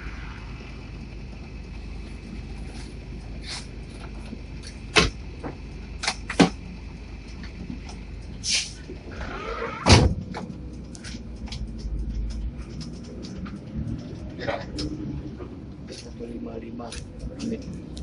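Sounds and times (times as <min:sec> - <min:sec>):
steady low rumble: 0:00.0 - 0:09.3, 0:09.9 - 0:18.0.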